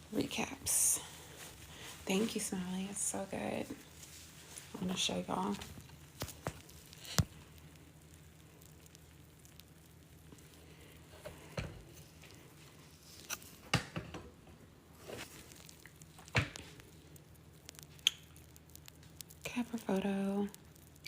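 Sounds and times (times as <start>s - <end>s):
faint steady hiss: 0.0s - 21.0s
wet sponge squishing: 14.9s - 17.0s.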